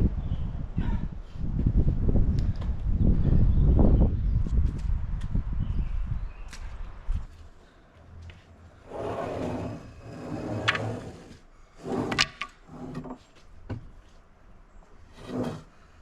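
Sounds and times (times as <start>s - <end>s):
wood-on-wood scrapes: 8.9s - 13.5s, 15.1s - 15.8s.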